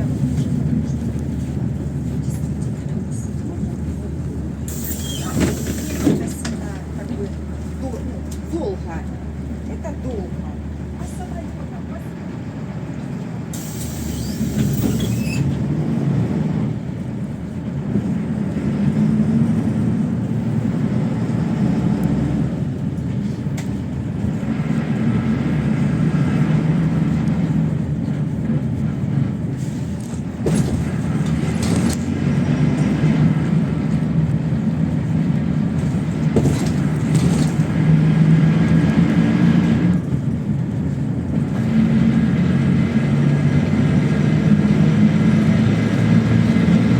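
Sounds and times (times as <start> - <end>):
bus engine: 0.0 - 46.9
short hiss: 13.5 - 15.2.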